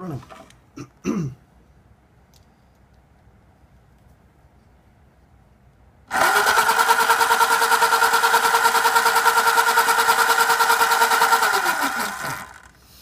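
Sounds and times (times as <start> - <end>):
electric motor whirring: 6.1 - 12.8.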